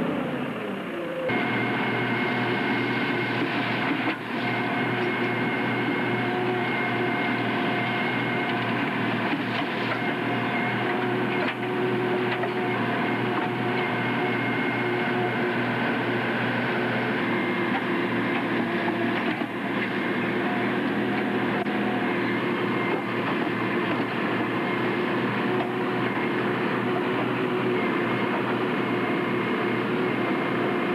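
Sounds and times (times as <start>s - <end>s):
train running: 1.3s - 30.9s.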